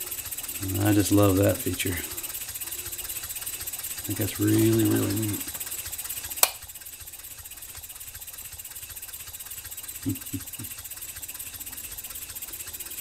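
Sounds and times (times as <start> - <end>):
steam engine exhaust puffs: 0.0 - 13.0
sharp click: 6.4 - 6.7.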